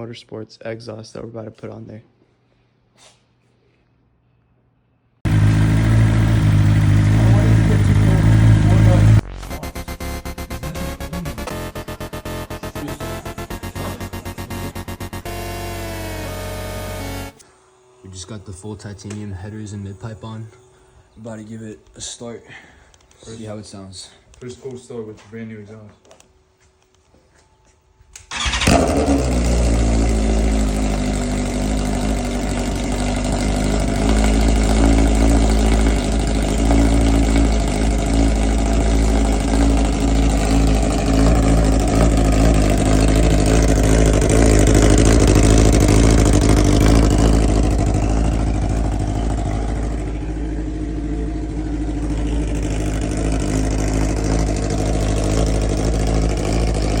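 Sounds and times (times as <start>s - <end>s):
motorcycle engine idling: 5.2s - 17.4s, 28.3s - 57.0s.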